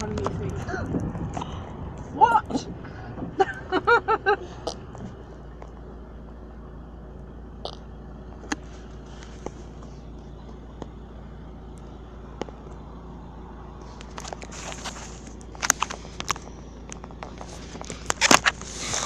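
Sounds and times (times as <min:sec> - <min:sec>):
car interior rumble: 0:00.0 - 0:19.0.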